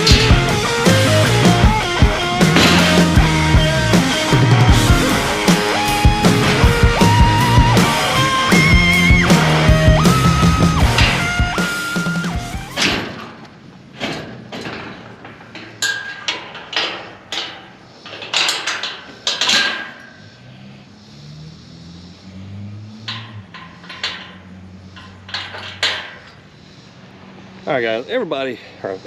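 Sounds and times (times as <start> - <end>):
objects knocking and clattering: 0.0 - 3.6, 14.0 - 20.0, 23.1 - 26.4.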